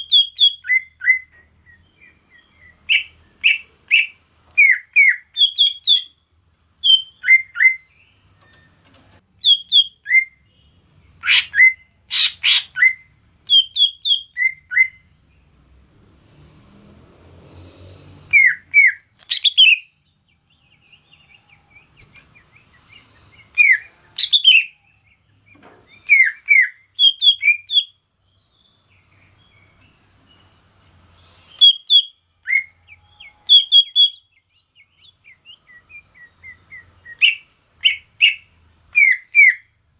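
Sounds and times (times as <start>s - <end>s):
bird chirps and whistles: 0.0s - 6.2s, 6.8s - 8.8s, 9.4s - 10.4s, 11.2s - 15.0s, 18.3s - 20.0s, 21.8s - 24.8s, 25.5s - 28.0s, 31.4s - 39.7s.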